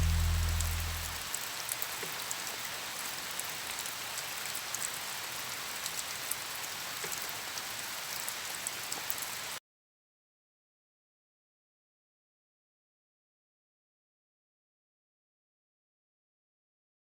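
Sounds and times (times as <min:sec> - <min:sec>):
raindrops ticking: 0:00.0 - 0:01.5
steady rain: 0:00.0 - 0:09.6.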